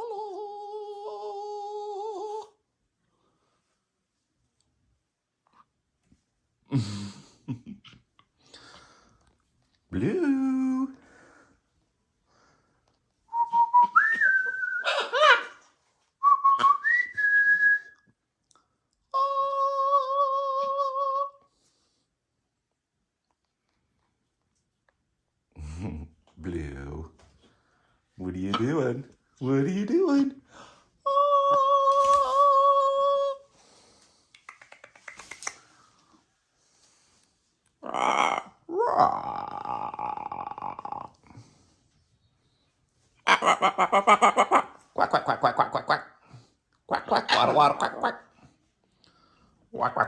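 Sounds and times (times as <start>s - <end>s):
person whistling: 13.3s - 14.9s, 16.2s - 18.0s.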